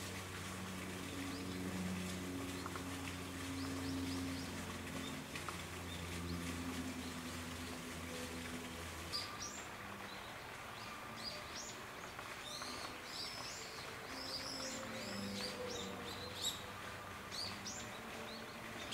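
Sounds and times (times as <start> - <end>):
low steady hum: 0.0 - 18.9.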